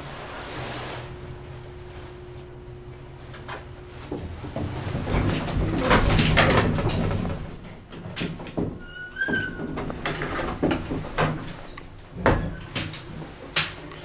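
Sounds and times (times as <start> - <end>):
door squeak: 8.8 - 9.8.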